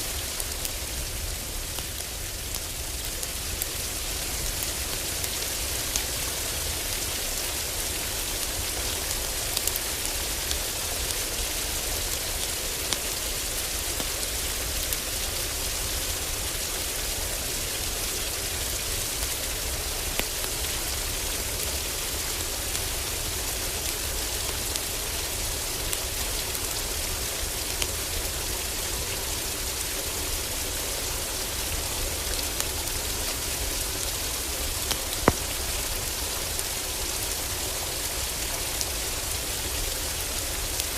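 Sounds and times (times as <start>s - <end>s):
heavy rain on a roof: 0.0s - 40.9s
wood fire crackling: 9.0s - 15.2s, 29.0s - 39.8s.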